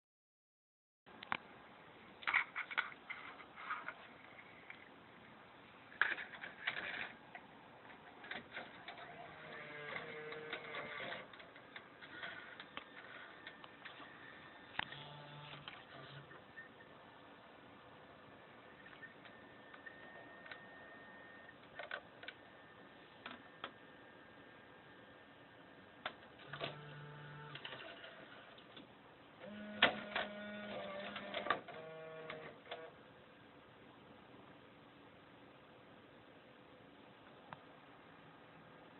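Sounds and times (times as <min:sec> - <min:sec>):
whirring hum: 0:01.1 - 0:38.9
car stereo mechanism whirring and clicking: 0:08.5 - 0:16.4.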